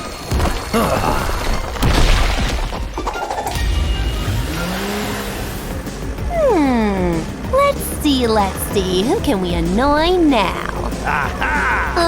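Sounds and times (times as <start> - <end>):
cartoon rock shattering: 0.3 - 4.7
background music: 2.8 - 12.0
heavy rumble: 3.3 - 12.0.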